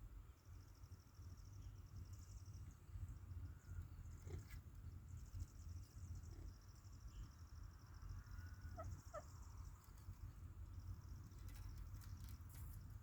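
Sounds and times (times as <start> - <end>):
soft parrot chirps: 8.6 - 9.4.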